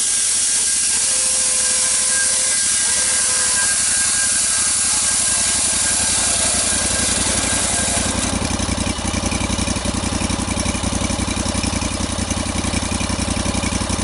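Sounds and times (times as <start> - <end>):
high hiss: 0.0 - 8.4
engine idling: 0.0 - 14.0.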